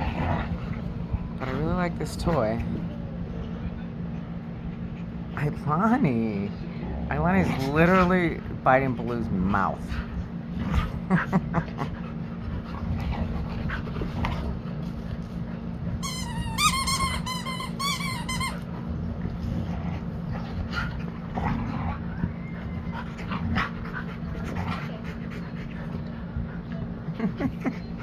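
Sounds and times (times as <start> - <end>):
dogs panting: 4.4 - 28.0
dog squealing: 16.0 - 18.6.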